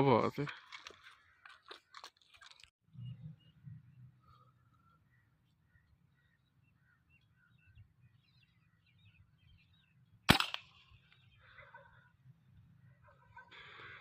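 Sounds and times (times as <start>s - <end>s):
small birds chirping: 0.6s - 14.0s
air rifle shot: 10.3s - 10.8s.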